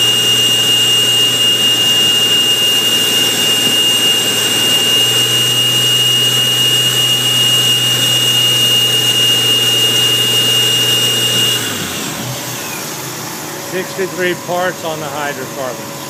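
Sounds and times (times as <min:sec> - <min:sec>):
supercharger whine: 0:00.0 - 0:16.0.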